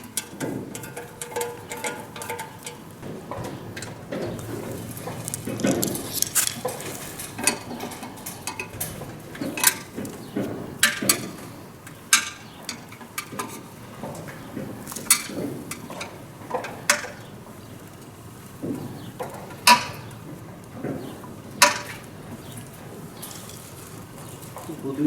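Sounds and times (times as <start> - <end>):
metallic clinks and knocks: 0.0 - 11.5.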